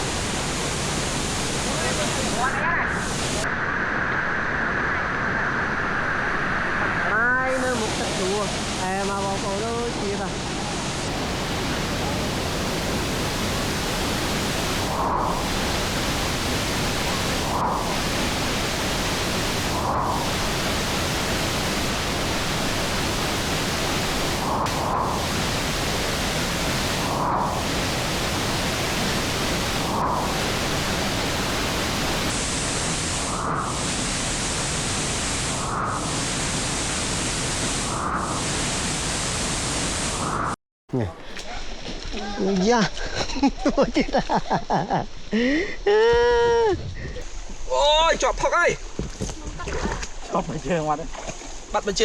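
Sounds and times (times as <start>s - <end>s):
waterfall roaring: 0.0s - 3.4s, 7.5s - 37.8s.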